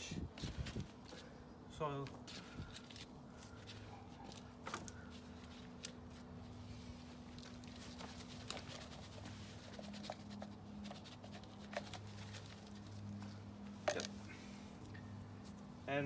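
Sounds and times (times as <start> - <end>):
soil scraping and tapping: 7.3 - 15.6.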